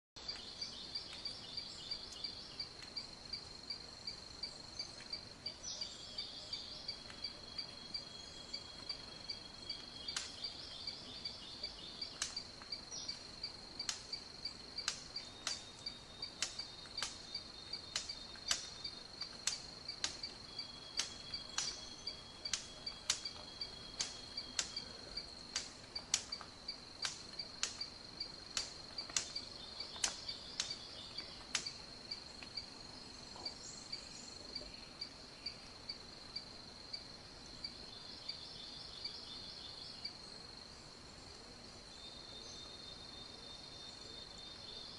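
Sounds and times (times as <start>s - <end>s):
insect chorus pulsing drone: 0.2s - 44.9s
sharp clicks: 14.8s - 15.6s, 17.9s - 20.4s, 21.0s - 21.8s, 22.5s - 23.4s, 24.0s - 27.9s, 28.5s - 31.8s.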